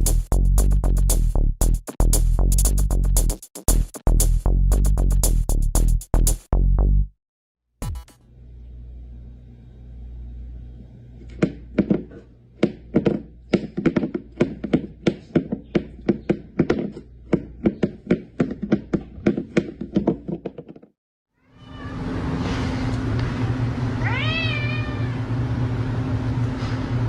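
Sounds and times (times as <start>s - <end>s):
dull knocking: 11.4s - 20.9s.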